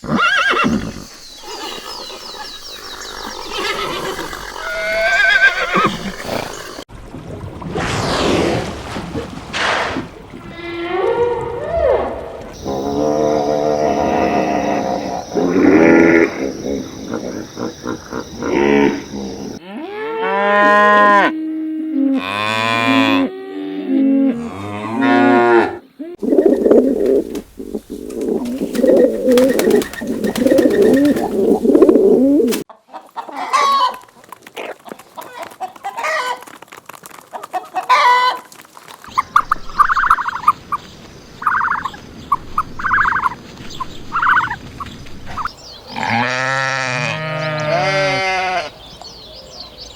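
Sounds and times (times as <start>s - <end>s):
poultry calling: 26.2s - 36.4s.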